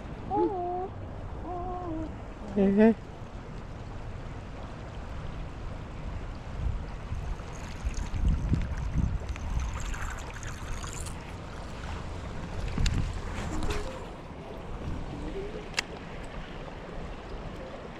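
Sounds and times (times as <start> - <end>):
water lapping against boat hull: 0.0 - 17.9
wind on microphone: 6.2 - 17.7.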